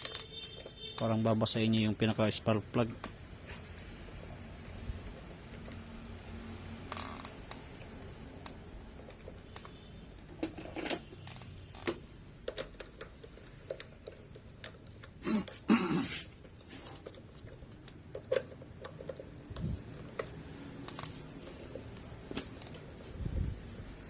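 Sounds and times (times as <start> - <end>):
faint high steady whine: 0.0 - 24.0
parts clattering: 0.0 - 24.0
engine parts clicking and knocking: 5.2 - 24.0.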